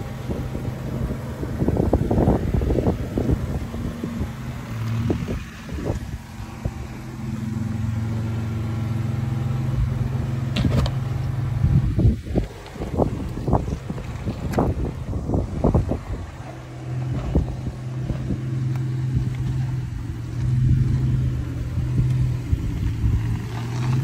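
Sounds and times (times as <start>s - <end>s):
off-road vehicle engine running: 0.0s - 24.0s
vehicle knocks and clatter: 10.5s - 20.7s.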